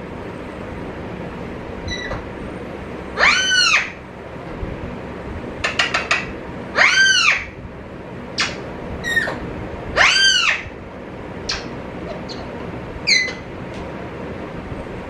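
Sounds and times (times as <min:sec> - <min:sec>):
bird squawking: 0:03.2 - 0:04.0, 0:06.8 - 0:07.5, 0:10.0 - 0:10.7, 0:11.5 - 0:13.5.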